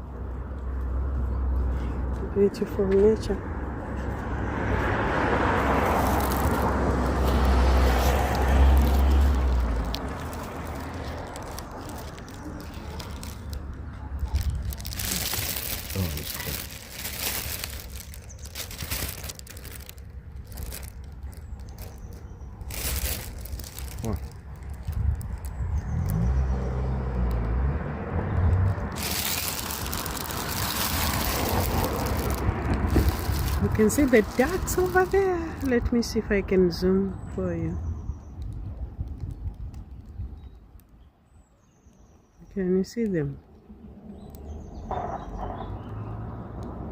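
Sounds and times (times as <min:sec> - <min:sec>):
vehicle passing: 0:00.0 - 0:37.8, 0:43.6 - 0:46.9
road traffic hum: 0:00.0 - 0:46.9.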